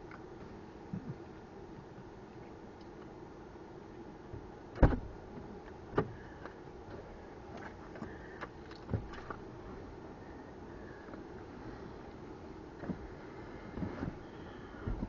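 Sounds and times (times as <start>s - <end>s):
faint steady background: 0.0s - 15.0s
loud sharp thump: 4.8s - 5.1s.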